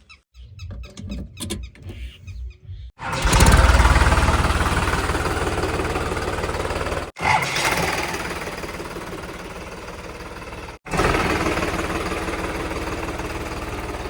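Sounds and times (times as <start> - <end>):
diesel engine clattering: 3.0 - 14.0.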